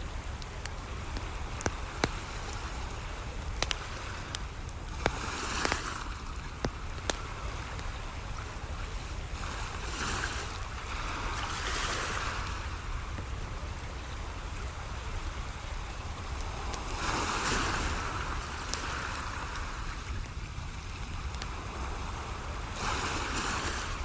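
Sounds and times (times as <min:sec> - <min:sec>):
campfire pops: 0:00.3 - 0:10.9
ocean waves washing in: 0:00.9 - 0:13.2, 0:15.9 - 0:24.0.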